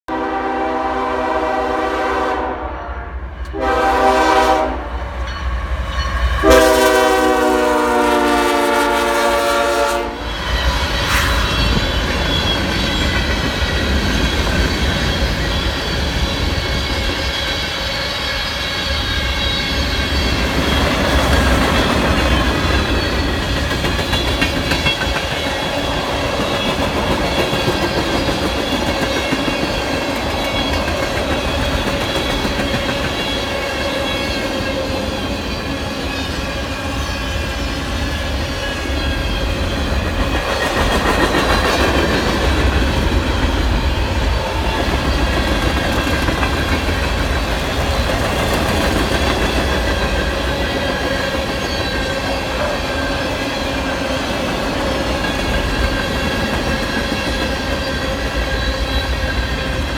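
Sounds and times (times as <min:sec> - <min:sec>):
locomotive air horn blasts: 0:00.1 - 0:05.2, 0:06.4 - 0:10.4
freight train rumbling past: 0:00.1 - 0:59.9
wheels clicking over rail joints: 0:20.3 - 0:33.3.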